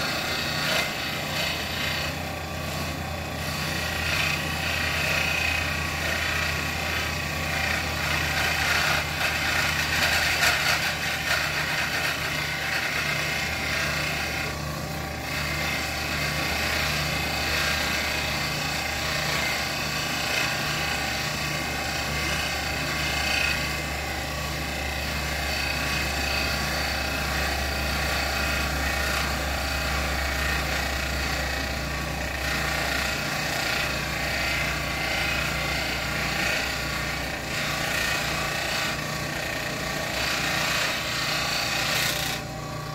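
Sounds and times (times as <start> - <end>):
motorized machine humming and throbbing: 0.0 - 42.9.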